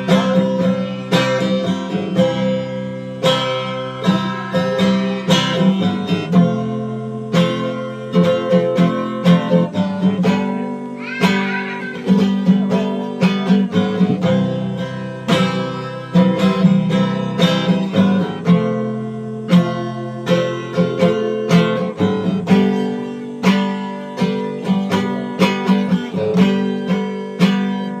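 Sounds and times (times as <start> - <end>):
plucked string instrument music: 0.0 - 28.0.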